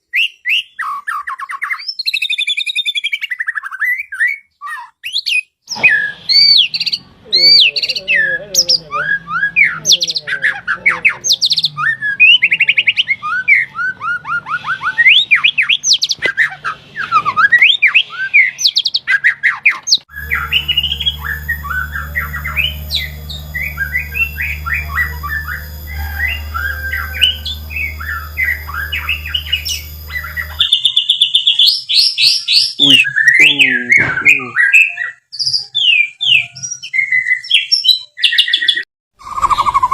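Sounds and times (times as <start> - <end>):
bird singing: 0.0 - 39.9
steady low hum: 20.1 - 30.8.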